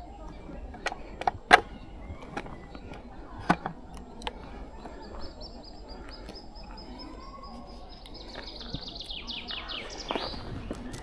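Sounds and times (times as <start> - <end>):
faint bird chirping: 0.0 - 11.0
sharp clicks: 0.2 - 5.0.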